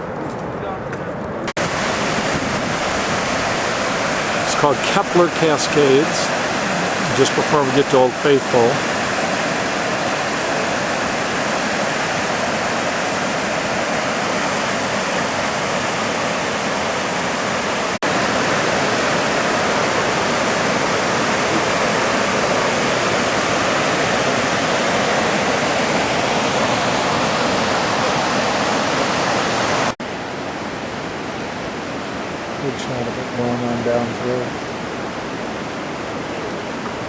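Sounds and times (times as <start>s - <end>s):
water cascading over rock: 1.6s - 30.0s.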